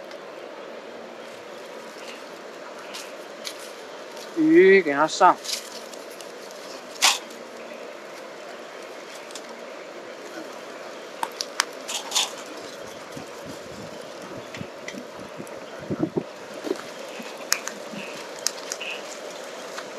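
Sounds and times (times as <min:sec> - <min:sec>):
creek water running: 0:00.0 - 0:19.9
sharp clicks and crackles: 0:11.2 - 0:13.3, 0:16.7 - 0:19.9.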